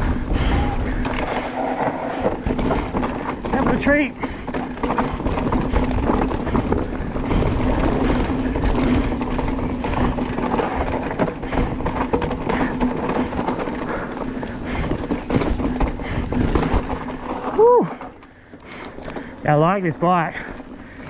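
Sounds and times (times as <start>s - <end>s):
wind noise on microphone: 0.0s - 3.6s, 4.3s - 12.8s, 14.6s - 17.4s
bike rattling and knocking: 0.0s - 21.0s
tyres rolling: 0.0s - 21.0s.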